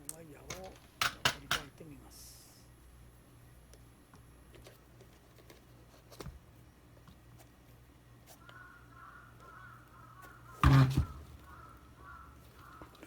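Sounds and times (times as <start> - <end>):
crow cawing: 8.4 - 10.6, 11.4 - 13.0.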